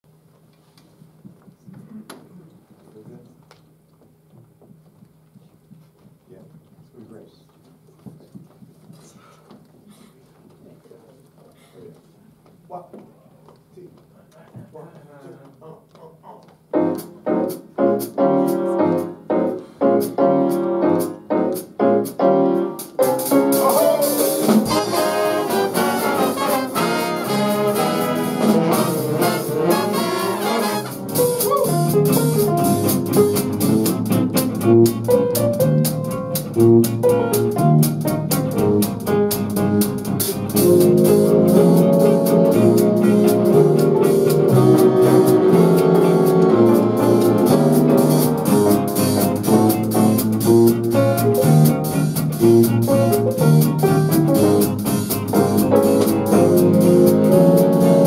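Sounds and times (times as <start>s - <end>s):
jazz band with brass and saxophones: 16.7s - 58.0s.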